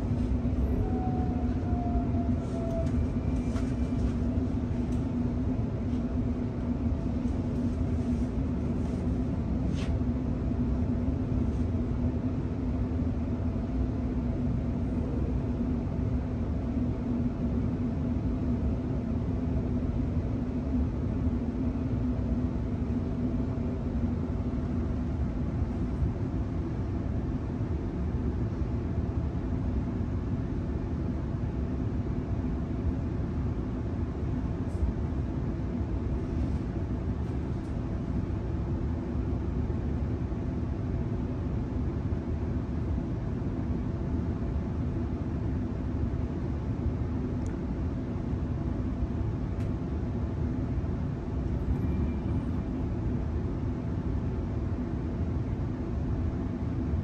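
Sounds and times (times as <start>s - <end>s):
train wheels rumbling on track: 0.0s - 9.3s
constant hum: 0.0s - 57.0s.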